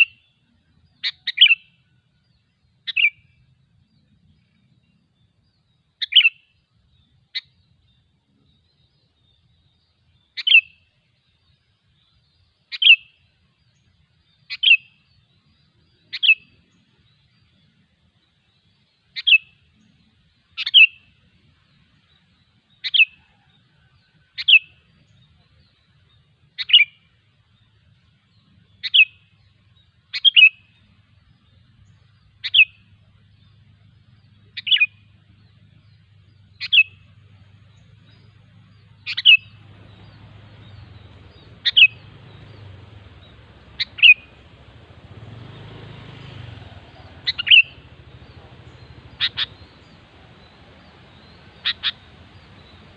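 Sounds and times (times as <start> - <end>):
low hum: 35.9 - 52.9
bird giving sharp calls: 38.0 - 52.9.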